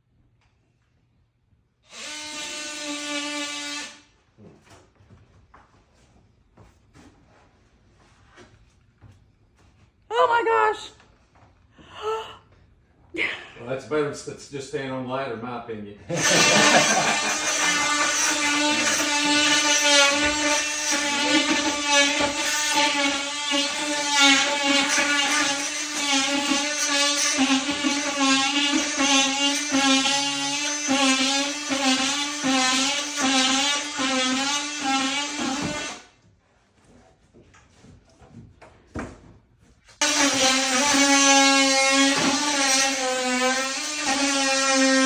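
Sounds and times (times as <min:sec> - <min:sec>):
power tool motor whining: 0:01.9 - 0:04.0, 0:16.1 - 0:36.1, 0:40.0 - 0:45.0.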